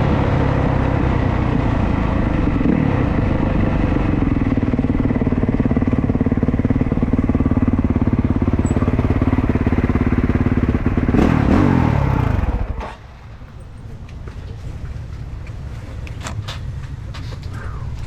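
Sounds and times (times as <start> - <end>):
dirt bike engine running: 0.0 - 13.6.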